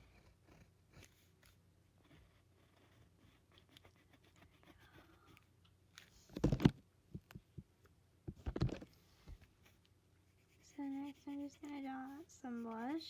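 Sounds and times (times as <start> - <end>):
pencil strokes on paper: 0.0 - 5.4, 9.6 - 13.0
pencil rubbing bursts: 10.3 - 13.0.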